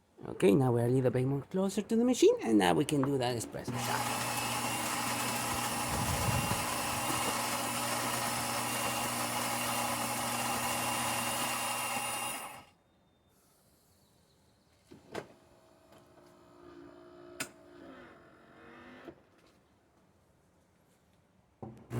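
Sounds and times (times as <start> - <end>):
coffee grinder whirring: 3.7 - 12.7.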